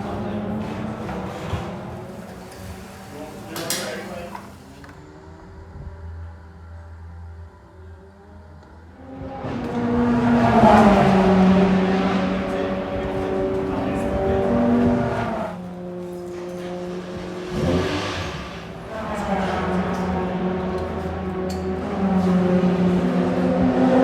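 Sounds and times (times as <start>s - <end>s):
race car engines passing: 0.0s - 24.0s.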